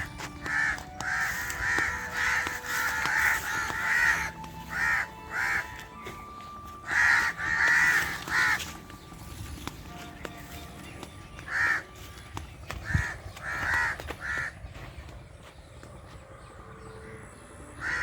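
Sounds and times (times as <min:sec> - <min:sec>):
crow cawing: 0:00.0 - 0:08.9, 0:11.4 - 0:12.0, 0:12.6 - 0:14.9, 0:17.8 - 0:18.0.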